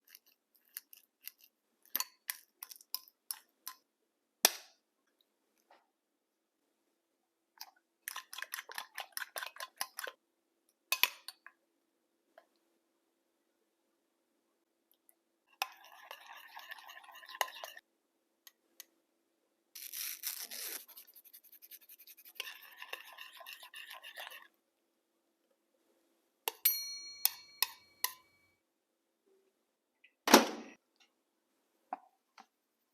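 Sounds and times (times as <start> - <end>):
utensil scraping in a bowl: 15.5 - 17.8, 19.8 - 24.5.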